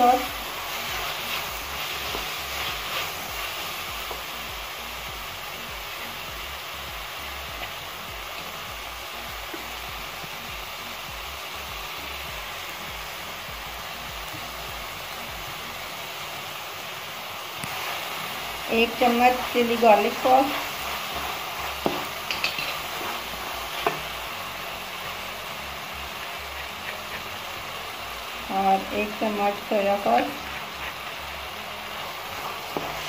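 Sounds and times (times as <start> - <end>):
vegetables sizzling in a wok: 0.0 - 33.0.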